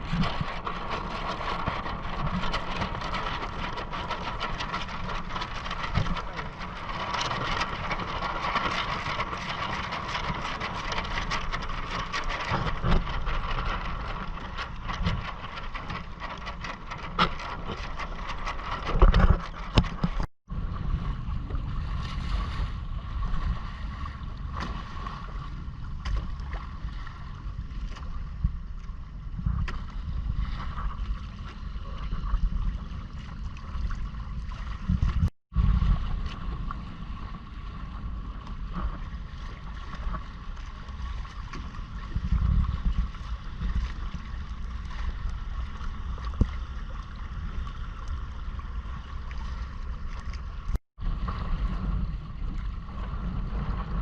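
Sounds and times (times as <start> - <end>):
water washing along hull: 0.0 - 54.0
wind rumbling on microphone: 0.0 - 54.0.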